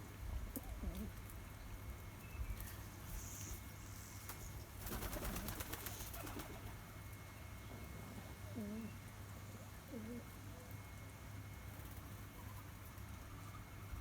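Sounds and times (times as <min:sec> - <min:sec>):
steady low hum: 0:00.0 - 0:14.0
dove cooing: 0:00.5 - 0:01.3, 0:07.9 - 0:10.8
wings fluttering: 0:02.6 - 0:06.8.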